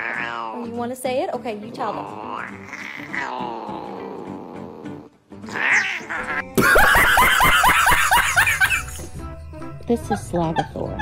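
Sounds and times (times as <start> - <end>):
cat meowing: 0.0 - 0.8, 2.0 - 4.4, 5.4 - 6.5.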